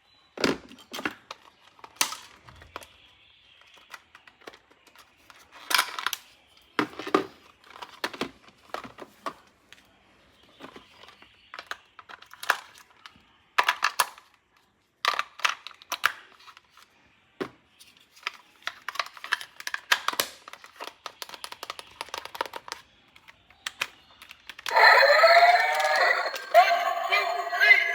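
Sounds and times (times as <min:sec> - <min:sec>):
toy parts clicking and tapping: 0:18.7 - 0:26.8.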